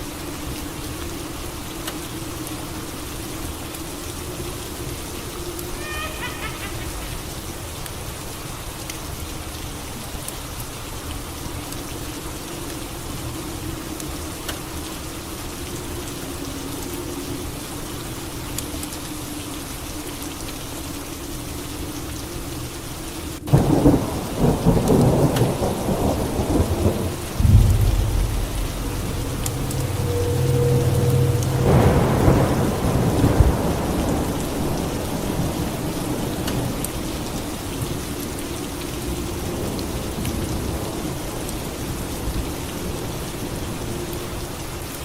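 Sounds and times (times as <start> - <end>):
steady rain falling: 0.0 - 45.0
thunder: 23.5 - 36.8.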